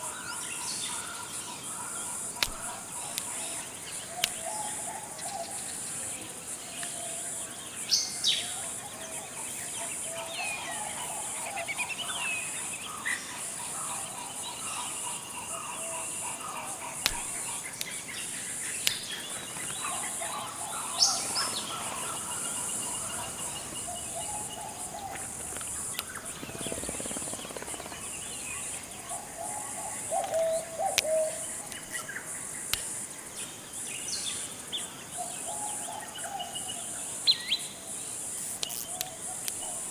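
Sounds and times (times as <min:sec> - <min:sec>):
high-pitched insect drone: 0:00.0 - 0:34.8, 0:35.4 - 0:39.9
birds whistling and warbling: 0:13.7 - 0:32.8.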